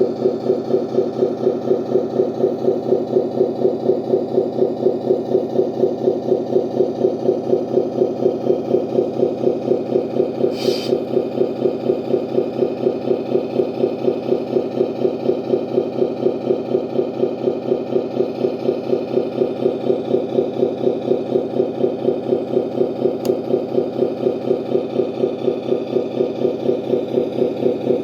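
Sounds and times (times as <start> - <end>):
brief hiss: 10.6 - 11.0.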